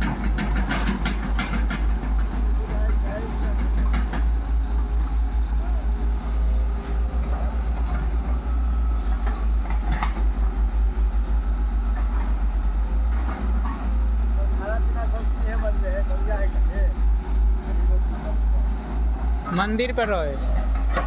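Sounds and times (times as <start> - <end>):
metal clanks: 0.0 - 4.5
diesel engine chugging: 0.0 - 21.0.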